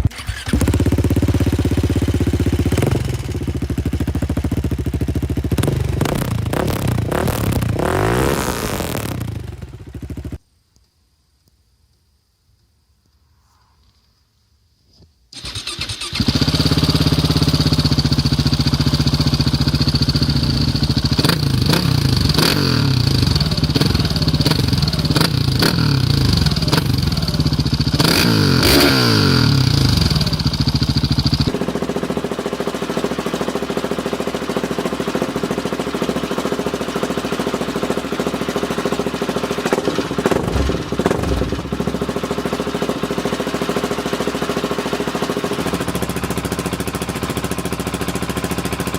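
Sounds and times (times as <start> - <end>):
engine throttle blips: 0.0 - 10.4, 15.4 - 44.1
motorcycle engine idling: 0.0 - 10.4, 15.4 - 48.9.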